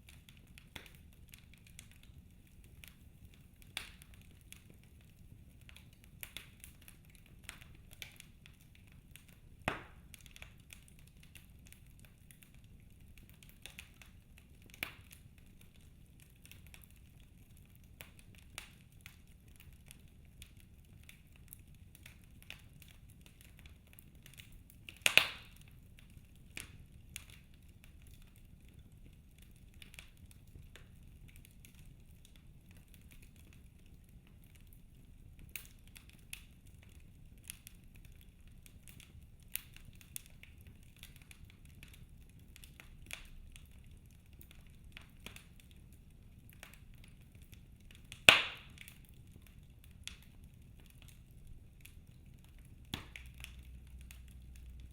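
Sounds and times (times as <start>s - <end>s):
wood fire crackling: 0.0s - 54.9s
loud sharp fire pops: 25.0s - 25.6s, 48.2s - 48.8s.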